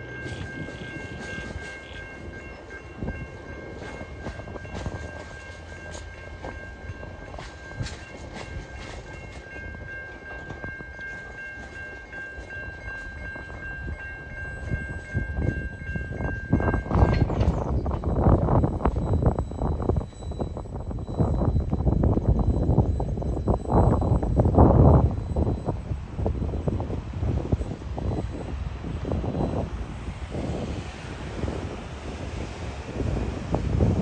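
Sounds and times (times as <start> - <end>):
train wheels clicking over rail joints: 0.0 - 20.6
steady high-pitched tone: 0.0 - 33.6.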